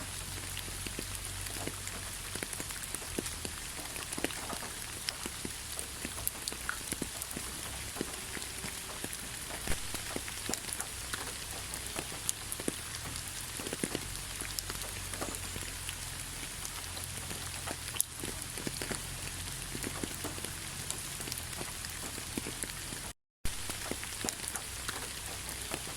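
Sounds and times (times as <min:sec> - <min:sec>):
raindrops tapping: 0:00.0 - 0:25.9
steady rainfall: 0:00.0 - 0:25.9.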